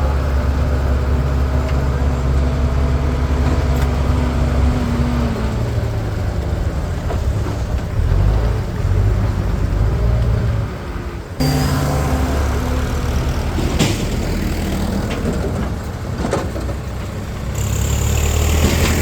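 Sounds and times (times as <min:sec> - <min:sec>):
tractor engine running: 0:11.4 - 0:19.0.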